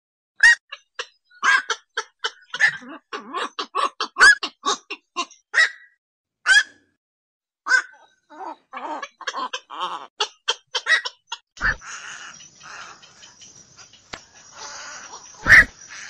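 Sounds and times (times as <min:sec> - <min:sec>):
heron croaks: 0:00.5 - 0:05.9, 0:07.7 - 0:16.0.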